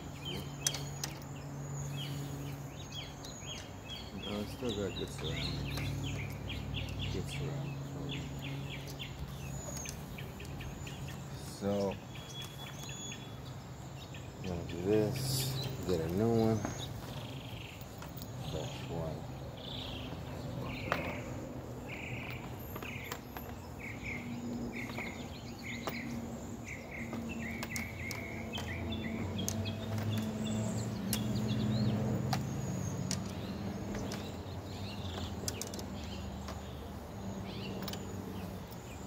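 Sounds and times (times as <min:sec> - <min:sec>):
bird chirping: 0:00.0 - 0:39.0.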